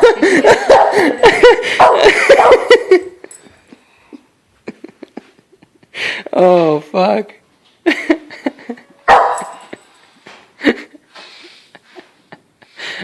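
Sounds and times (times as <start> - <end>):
dog barking rapidly: 0.6 - 1.1, 1.8 - 2.8, 9.1 - 9.6.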